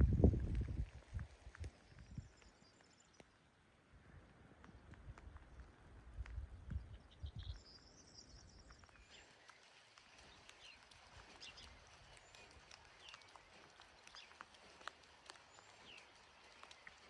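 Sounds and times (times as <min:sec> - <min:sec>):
birds chirping: 0:04.5 - 0:17.0.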